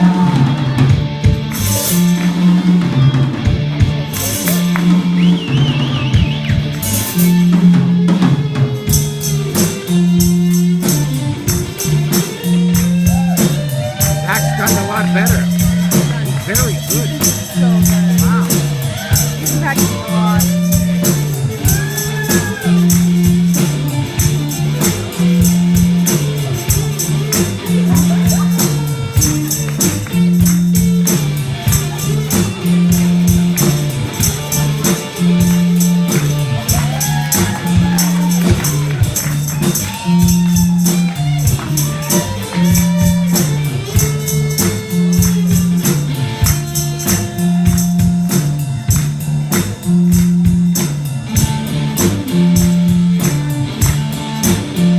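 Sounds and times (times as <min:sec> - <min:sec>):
bass riff: 0:00.0 - 0:54.9
drum beat: 0:00.0 - 0:54.9
rock band playing: 0:00.0 - 0:54.9.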